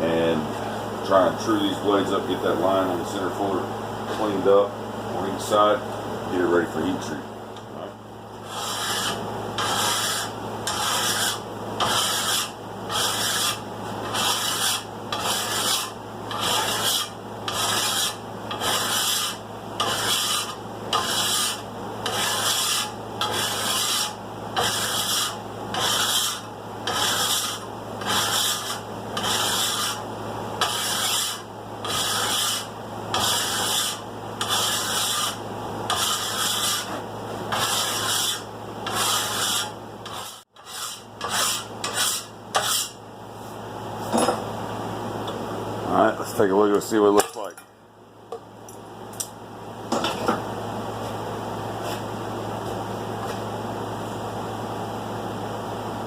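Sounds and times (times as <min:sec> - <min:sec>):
hand file filing steel: 0:08.5 - 0:30.0, 0:30.6 - 0:43.0.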